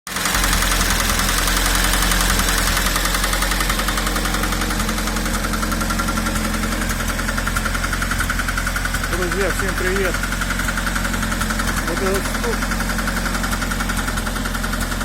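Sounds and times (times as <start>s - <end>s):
engine idling with rapid knock: 0.1s - 15.0s.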